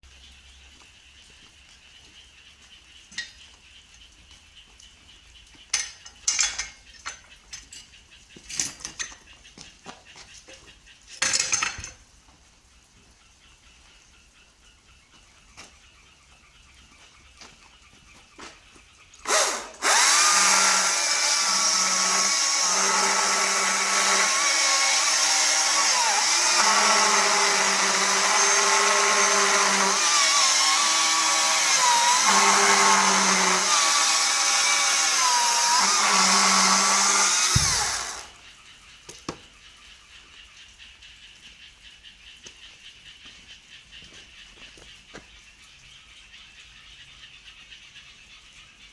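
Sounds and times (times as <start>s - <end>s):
chainsaw running at high speed: 19.3s - 38.4s.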